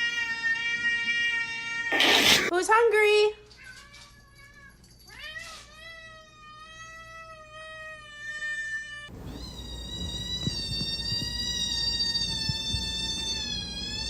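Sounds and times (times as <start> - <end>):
cat meowing: 3.7 - 14.0.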